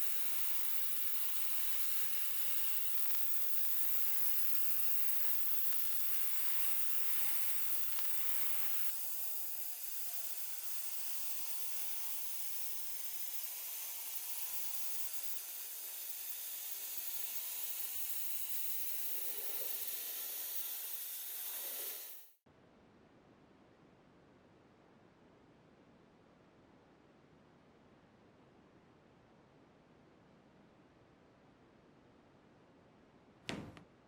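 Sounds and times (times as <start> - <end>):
spray painting hiss: 0.0 - 22.4.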